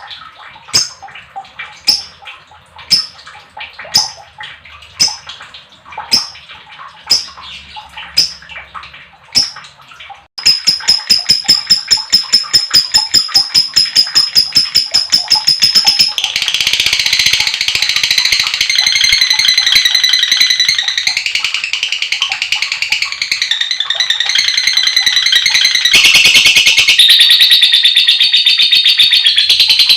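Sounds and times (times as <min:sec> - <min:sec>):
lovebird chirping and trilling: 0:01.8 - 0:02.2, 0:03.9 - 0:04.2, 0:06.1 - 0:06.4, 0:07.1 - 0:08.4, 0:09.3 - 0:09.6, 0:10.4 - 0:29.9.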